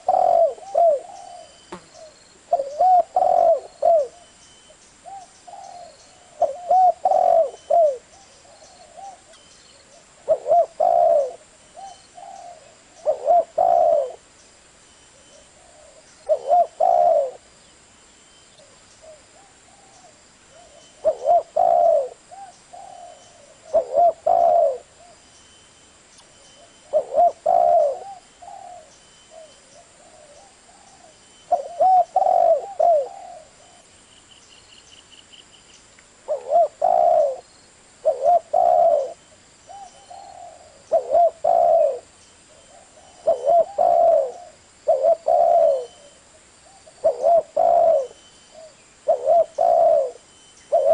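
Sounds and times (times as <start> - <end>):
dove cooing: 0.0 - 4.4, 5.0 - 14.3, 15.1 - 17.5, 18.6 - 25.2, 26.6 - 33.9, 36.3 - 50.9
faint high chirping pulse: 0.1 - 35.8.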